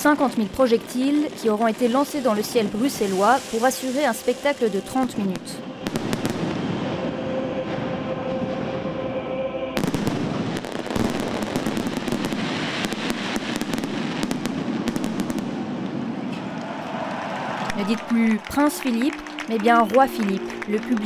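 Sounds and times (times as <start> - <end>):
fireworks crackling and bangs: 0.0 - 7.1, 9.8 - 17.2.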